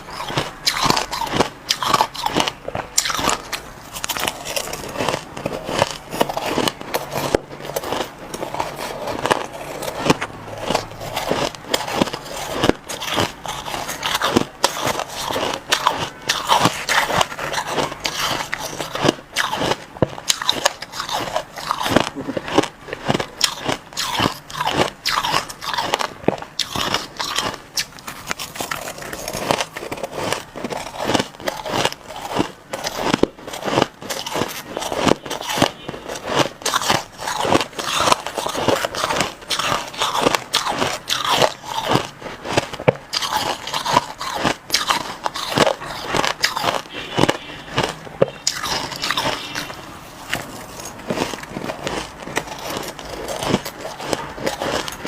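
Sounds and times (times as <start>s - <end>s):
crushed ice being chewed: 0.0s - 55.0s.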